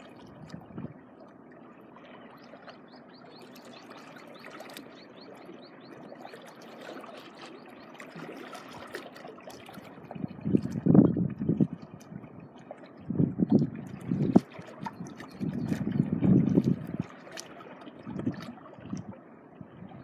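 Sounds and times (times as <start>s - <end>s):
seawater lapping at shoreline: 0.0s - 20.0s
wind buffeting microphone: 0.3s - 1.0s, 10.0s - 17.0s.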